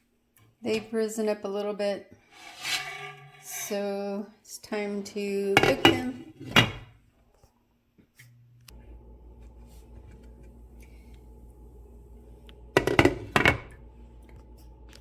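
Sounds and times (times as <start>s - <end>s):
low kitchen hum: 0.0s - 15.0s
cookware knocking: 5.6s - 6.9s, 12.8s - 13.7s.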